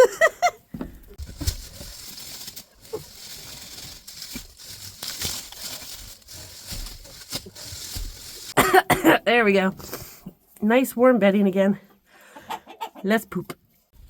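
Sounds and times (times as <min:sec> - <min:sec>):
dry hay rustling: 0:01.1 - 0:08.6.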